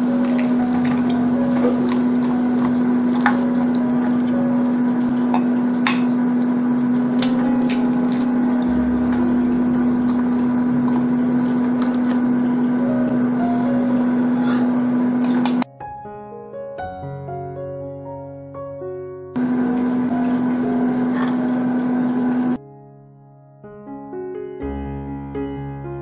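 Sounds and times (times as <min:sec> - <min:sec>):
eggs cracking against bowl: 0:00.0 - 0:03.9, 0:05.4 - 0:08.4, 0:10.0 - 0:12.4
loud low hum: 0:00.0 - 0:15.7, 0:19.4 - 0:22.6.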